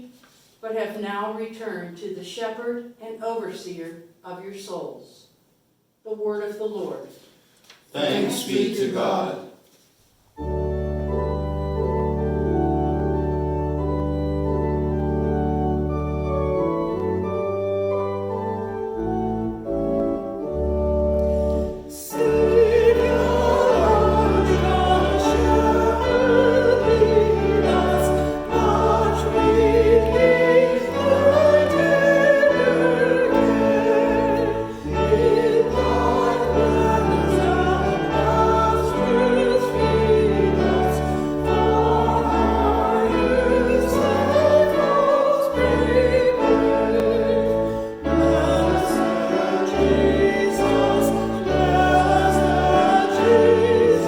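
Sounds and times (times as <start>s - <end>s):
people singing a hymn: 8.0s - 9.4s, 21.3s - 54.0s
organ chords: 10.4s - 54.0s.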